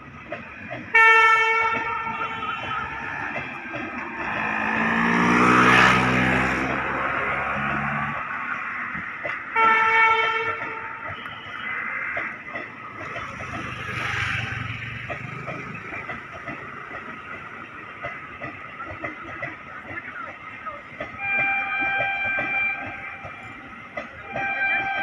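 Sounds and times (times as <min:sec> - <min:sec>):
passing train rumbling: 0:00.0 - 0:25.0
wheels clicking over rails: 0:00.0 - 0:25.0
locomotive horn toot: 0:00.9 - 0:08.2, 0:09.5 - 0:12.2, 0:21.1 - 0:23.4, 0:24.2 - 0:25.0.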